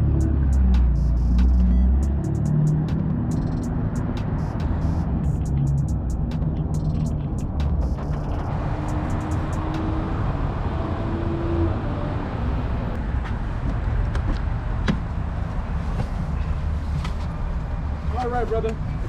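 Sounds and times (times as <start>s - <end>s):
car engine rumble: 0.0s - 11.2s
road traffic: 0.0s - 19.0s.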